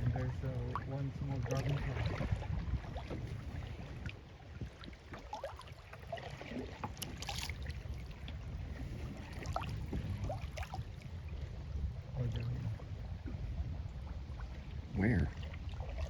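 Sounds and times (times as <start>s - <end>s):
water dripping and lapping: 0.0s - 11.5s, 12.2s - 16.0s
wind rumble on microphone: 0.0s - 16.0s
water splash: 5.1s - 8.1s.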